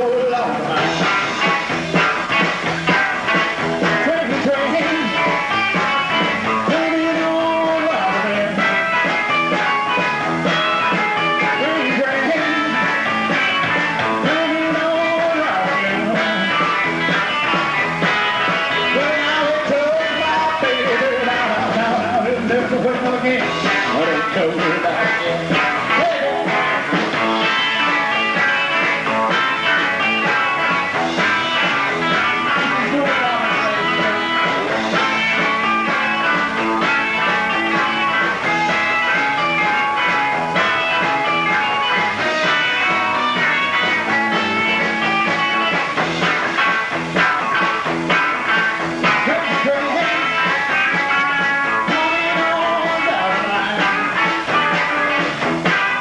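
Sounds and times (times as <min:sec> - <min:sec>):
bass: 0:00.0 - 0:56.0
drums: 0:00.0 - 0:56.0
guitar lead: 0:00.0 - 0:56.0.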